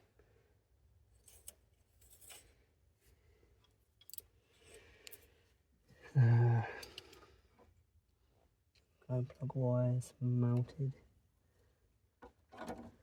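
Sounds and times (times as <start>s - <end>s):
metal parts clicking and scraping: 1.2s - 2.5s.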